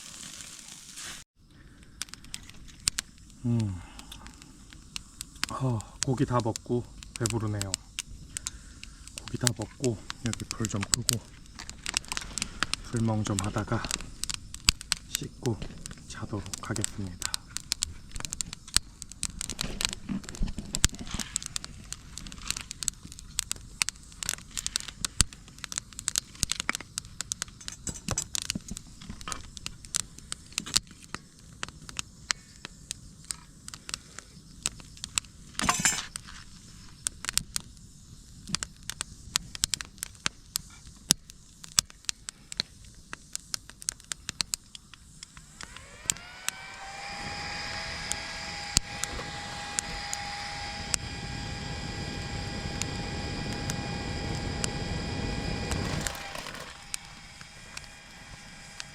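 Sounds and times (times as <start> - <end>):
firewood crackling and popping: 0.0 - 58.9
rising multi-tone hum: 45.4 - 58.9.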